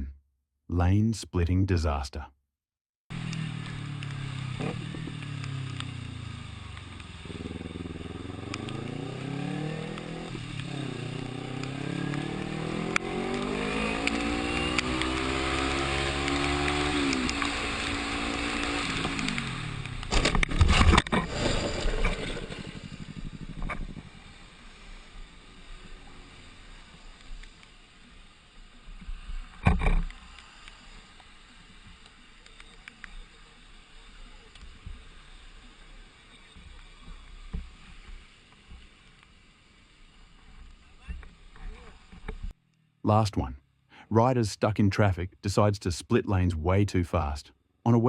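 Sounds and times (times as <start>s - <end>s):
motorcycle engine accelerating: 3.1s - 24.5s.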